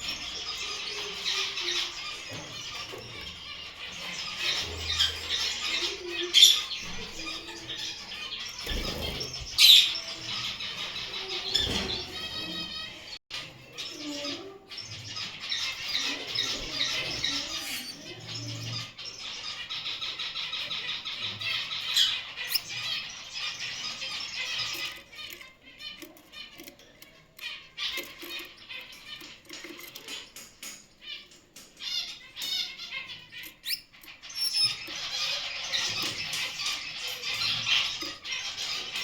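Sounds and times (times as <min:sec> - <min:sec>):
finches chirping: 0:00.0 - 0:39.0.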